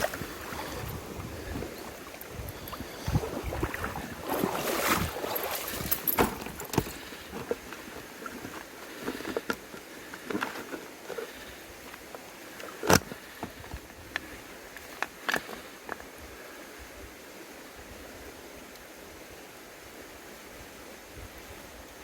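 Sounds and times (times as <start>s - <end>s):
water splashing and sloshing: 0.0s - 16.0s
knocks and handling clatter: 4.3s - 13.8s.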